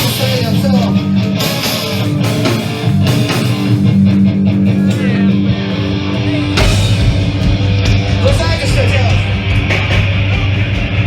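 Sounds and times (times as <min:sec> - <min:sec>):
distorted electric guitar chords: 0:00.0 - 0:11.0
drum hits: 0:02.4 - 0:11.0.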